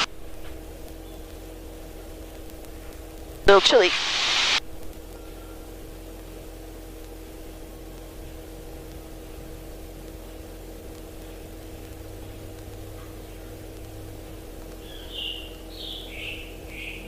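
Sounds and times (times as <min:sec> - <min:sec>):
low rumble and hiss: 0:00.0 - 0:17.0.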